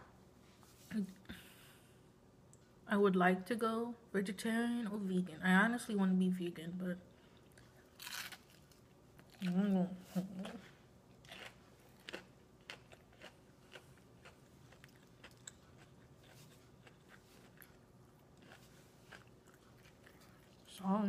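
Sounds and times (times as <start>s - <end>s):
person chewing and crunching food: 7.2s - 9.6s, 10.2s - 20.8s.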